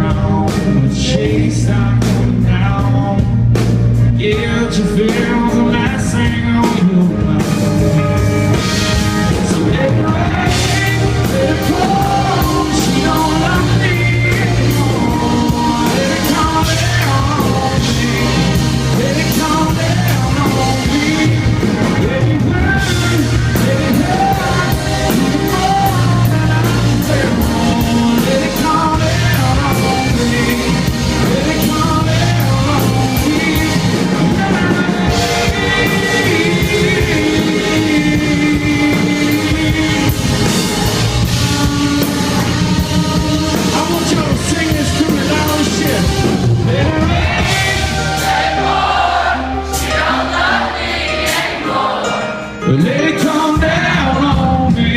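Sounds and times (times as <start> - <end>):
live country-rock band with singer: 0.0 - 54.9.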